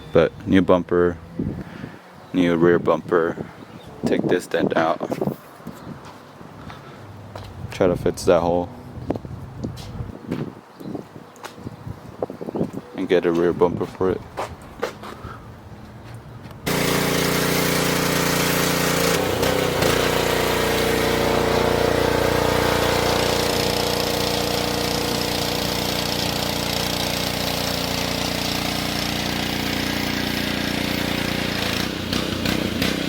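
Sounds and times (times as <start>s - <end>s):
engine running steadily: 16.6s - 33.0s.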